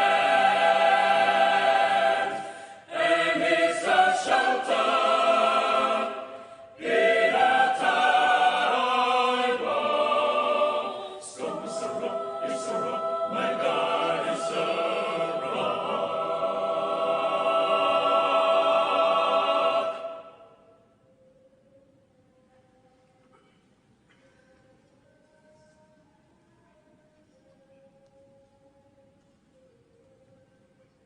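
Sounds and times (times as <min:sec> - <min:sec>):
a cappella choir singing chords: 0:00.0 - 0:21.1.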